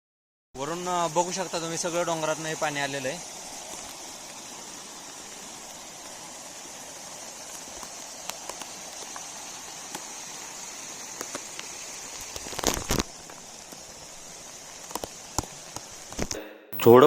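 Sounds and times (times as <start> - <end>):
steady rain falling: 0.6 - 16.4
raindrops ticking: 3.4 - 4.8, 5.5 - 16.4.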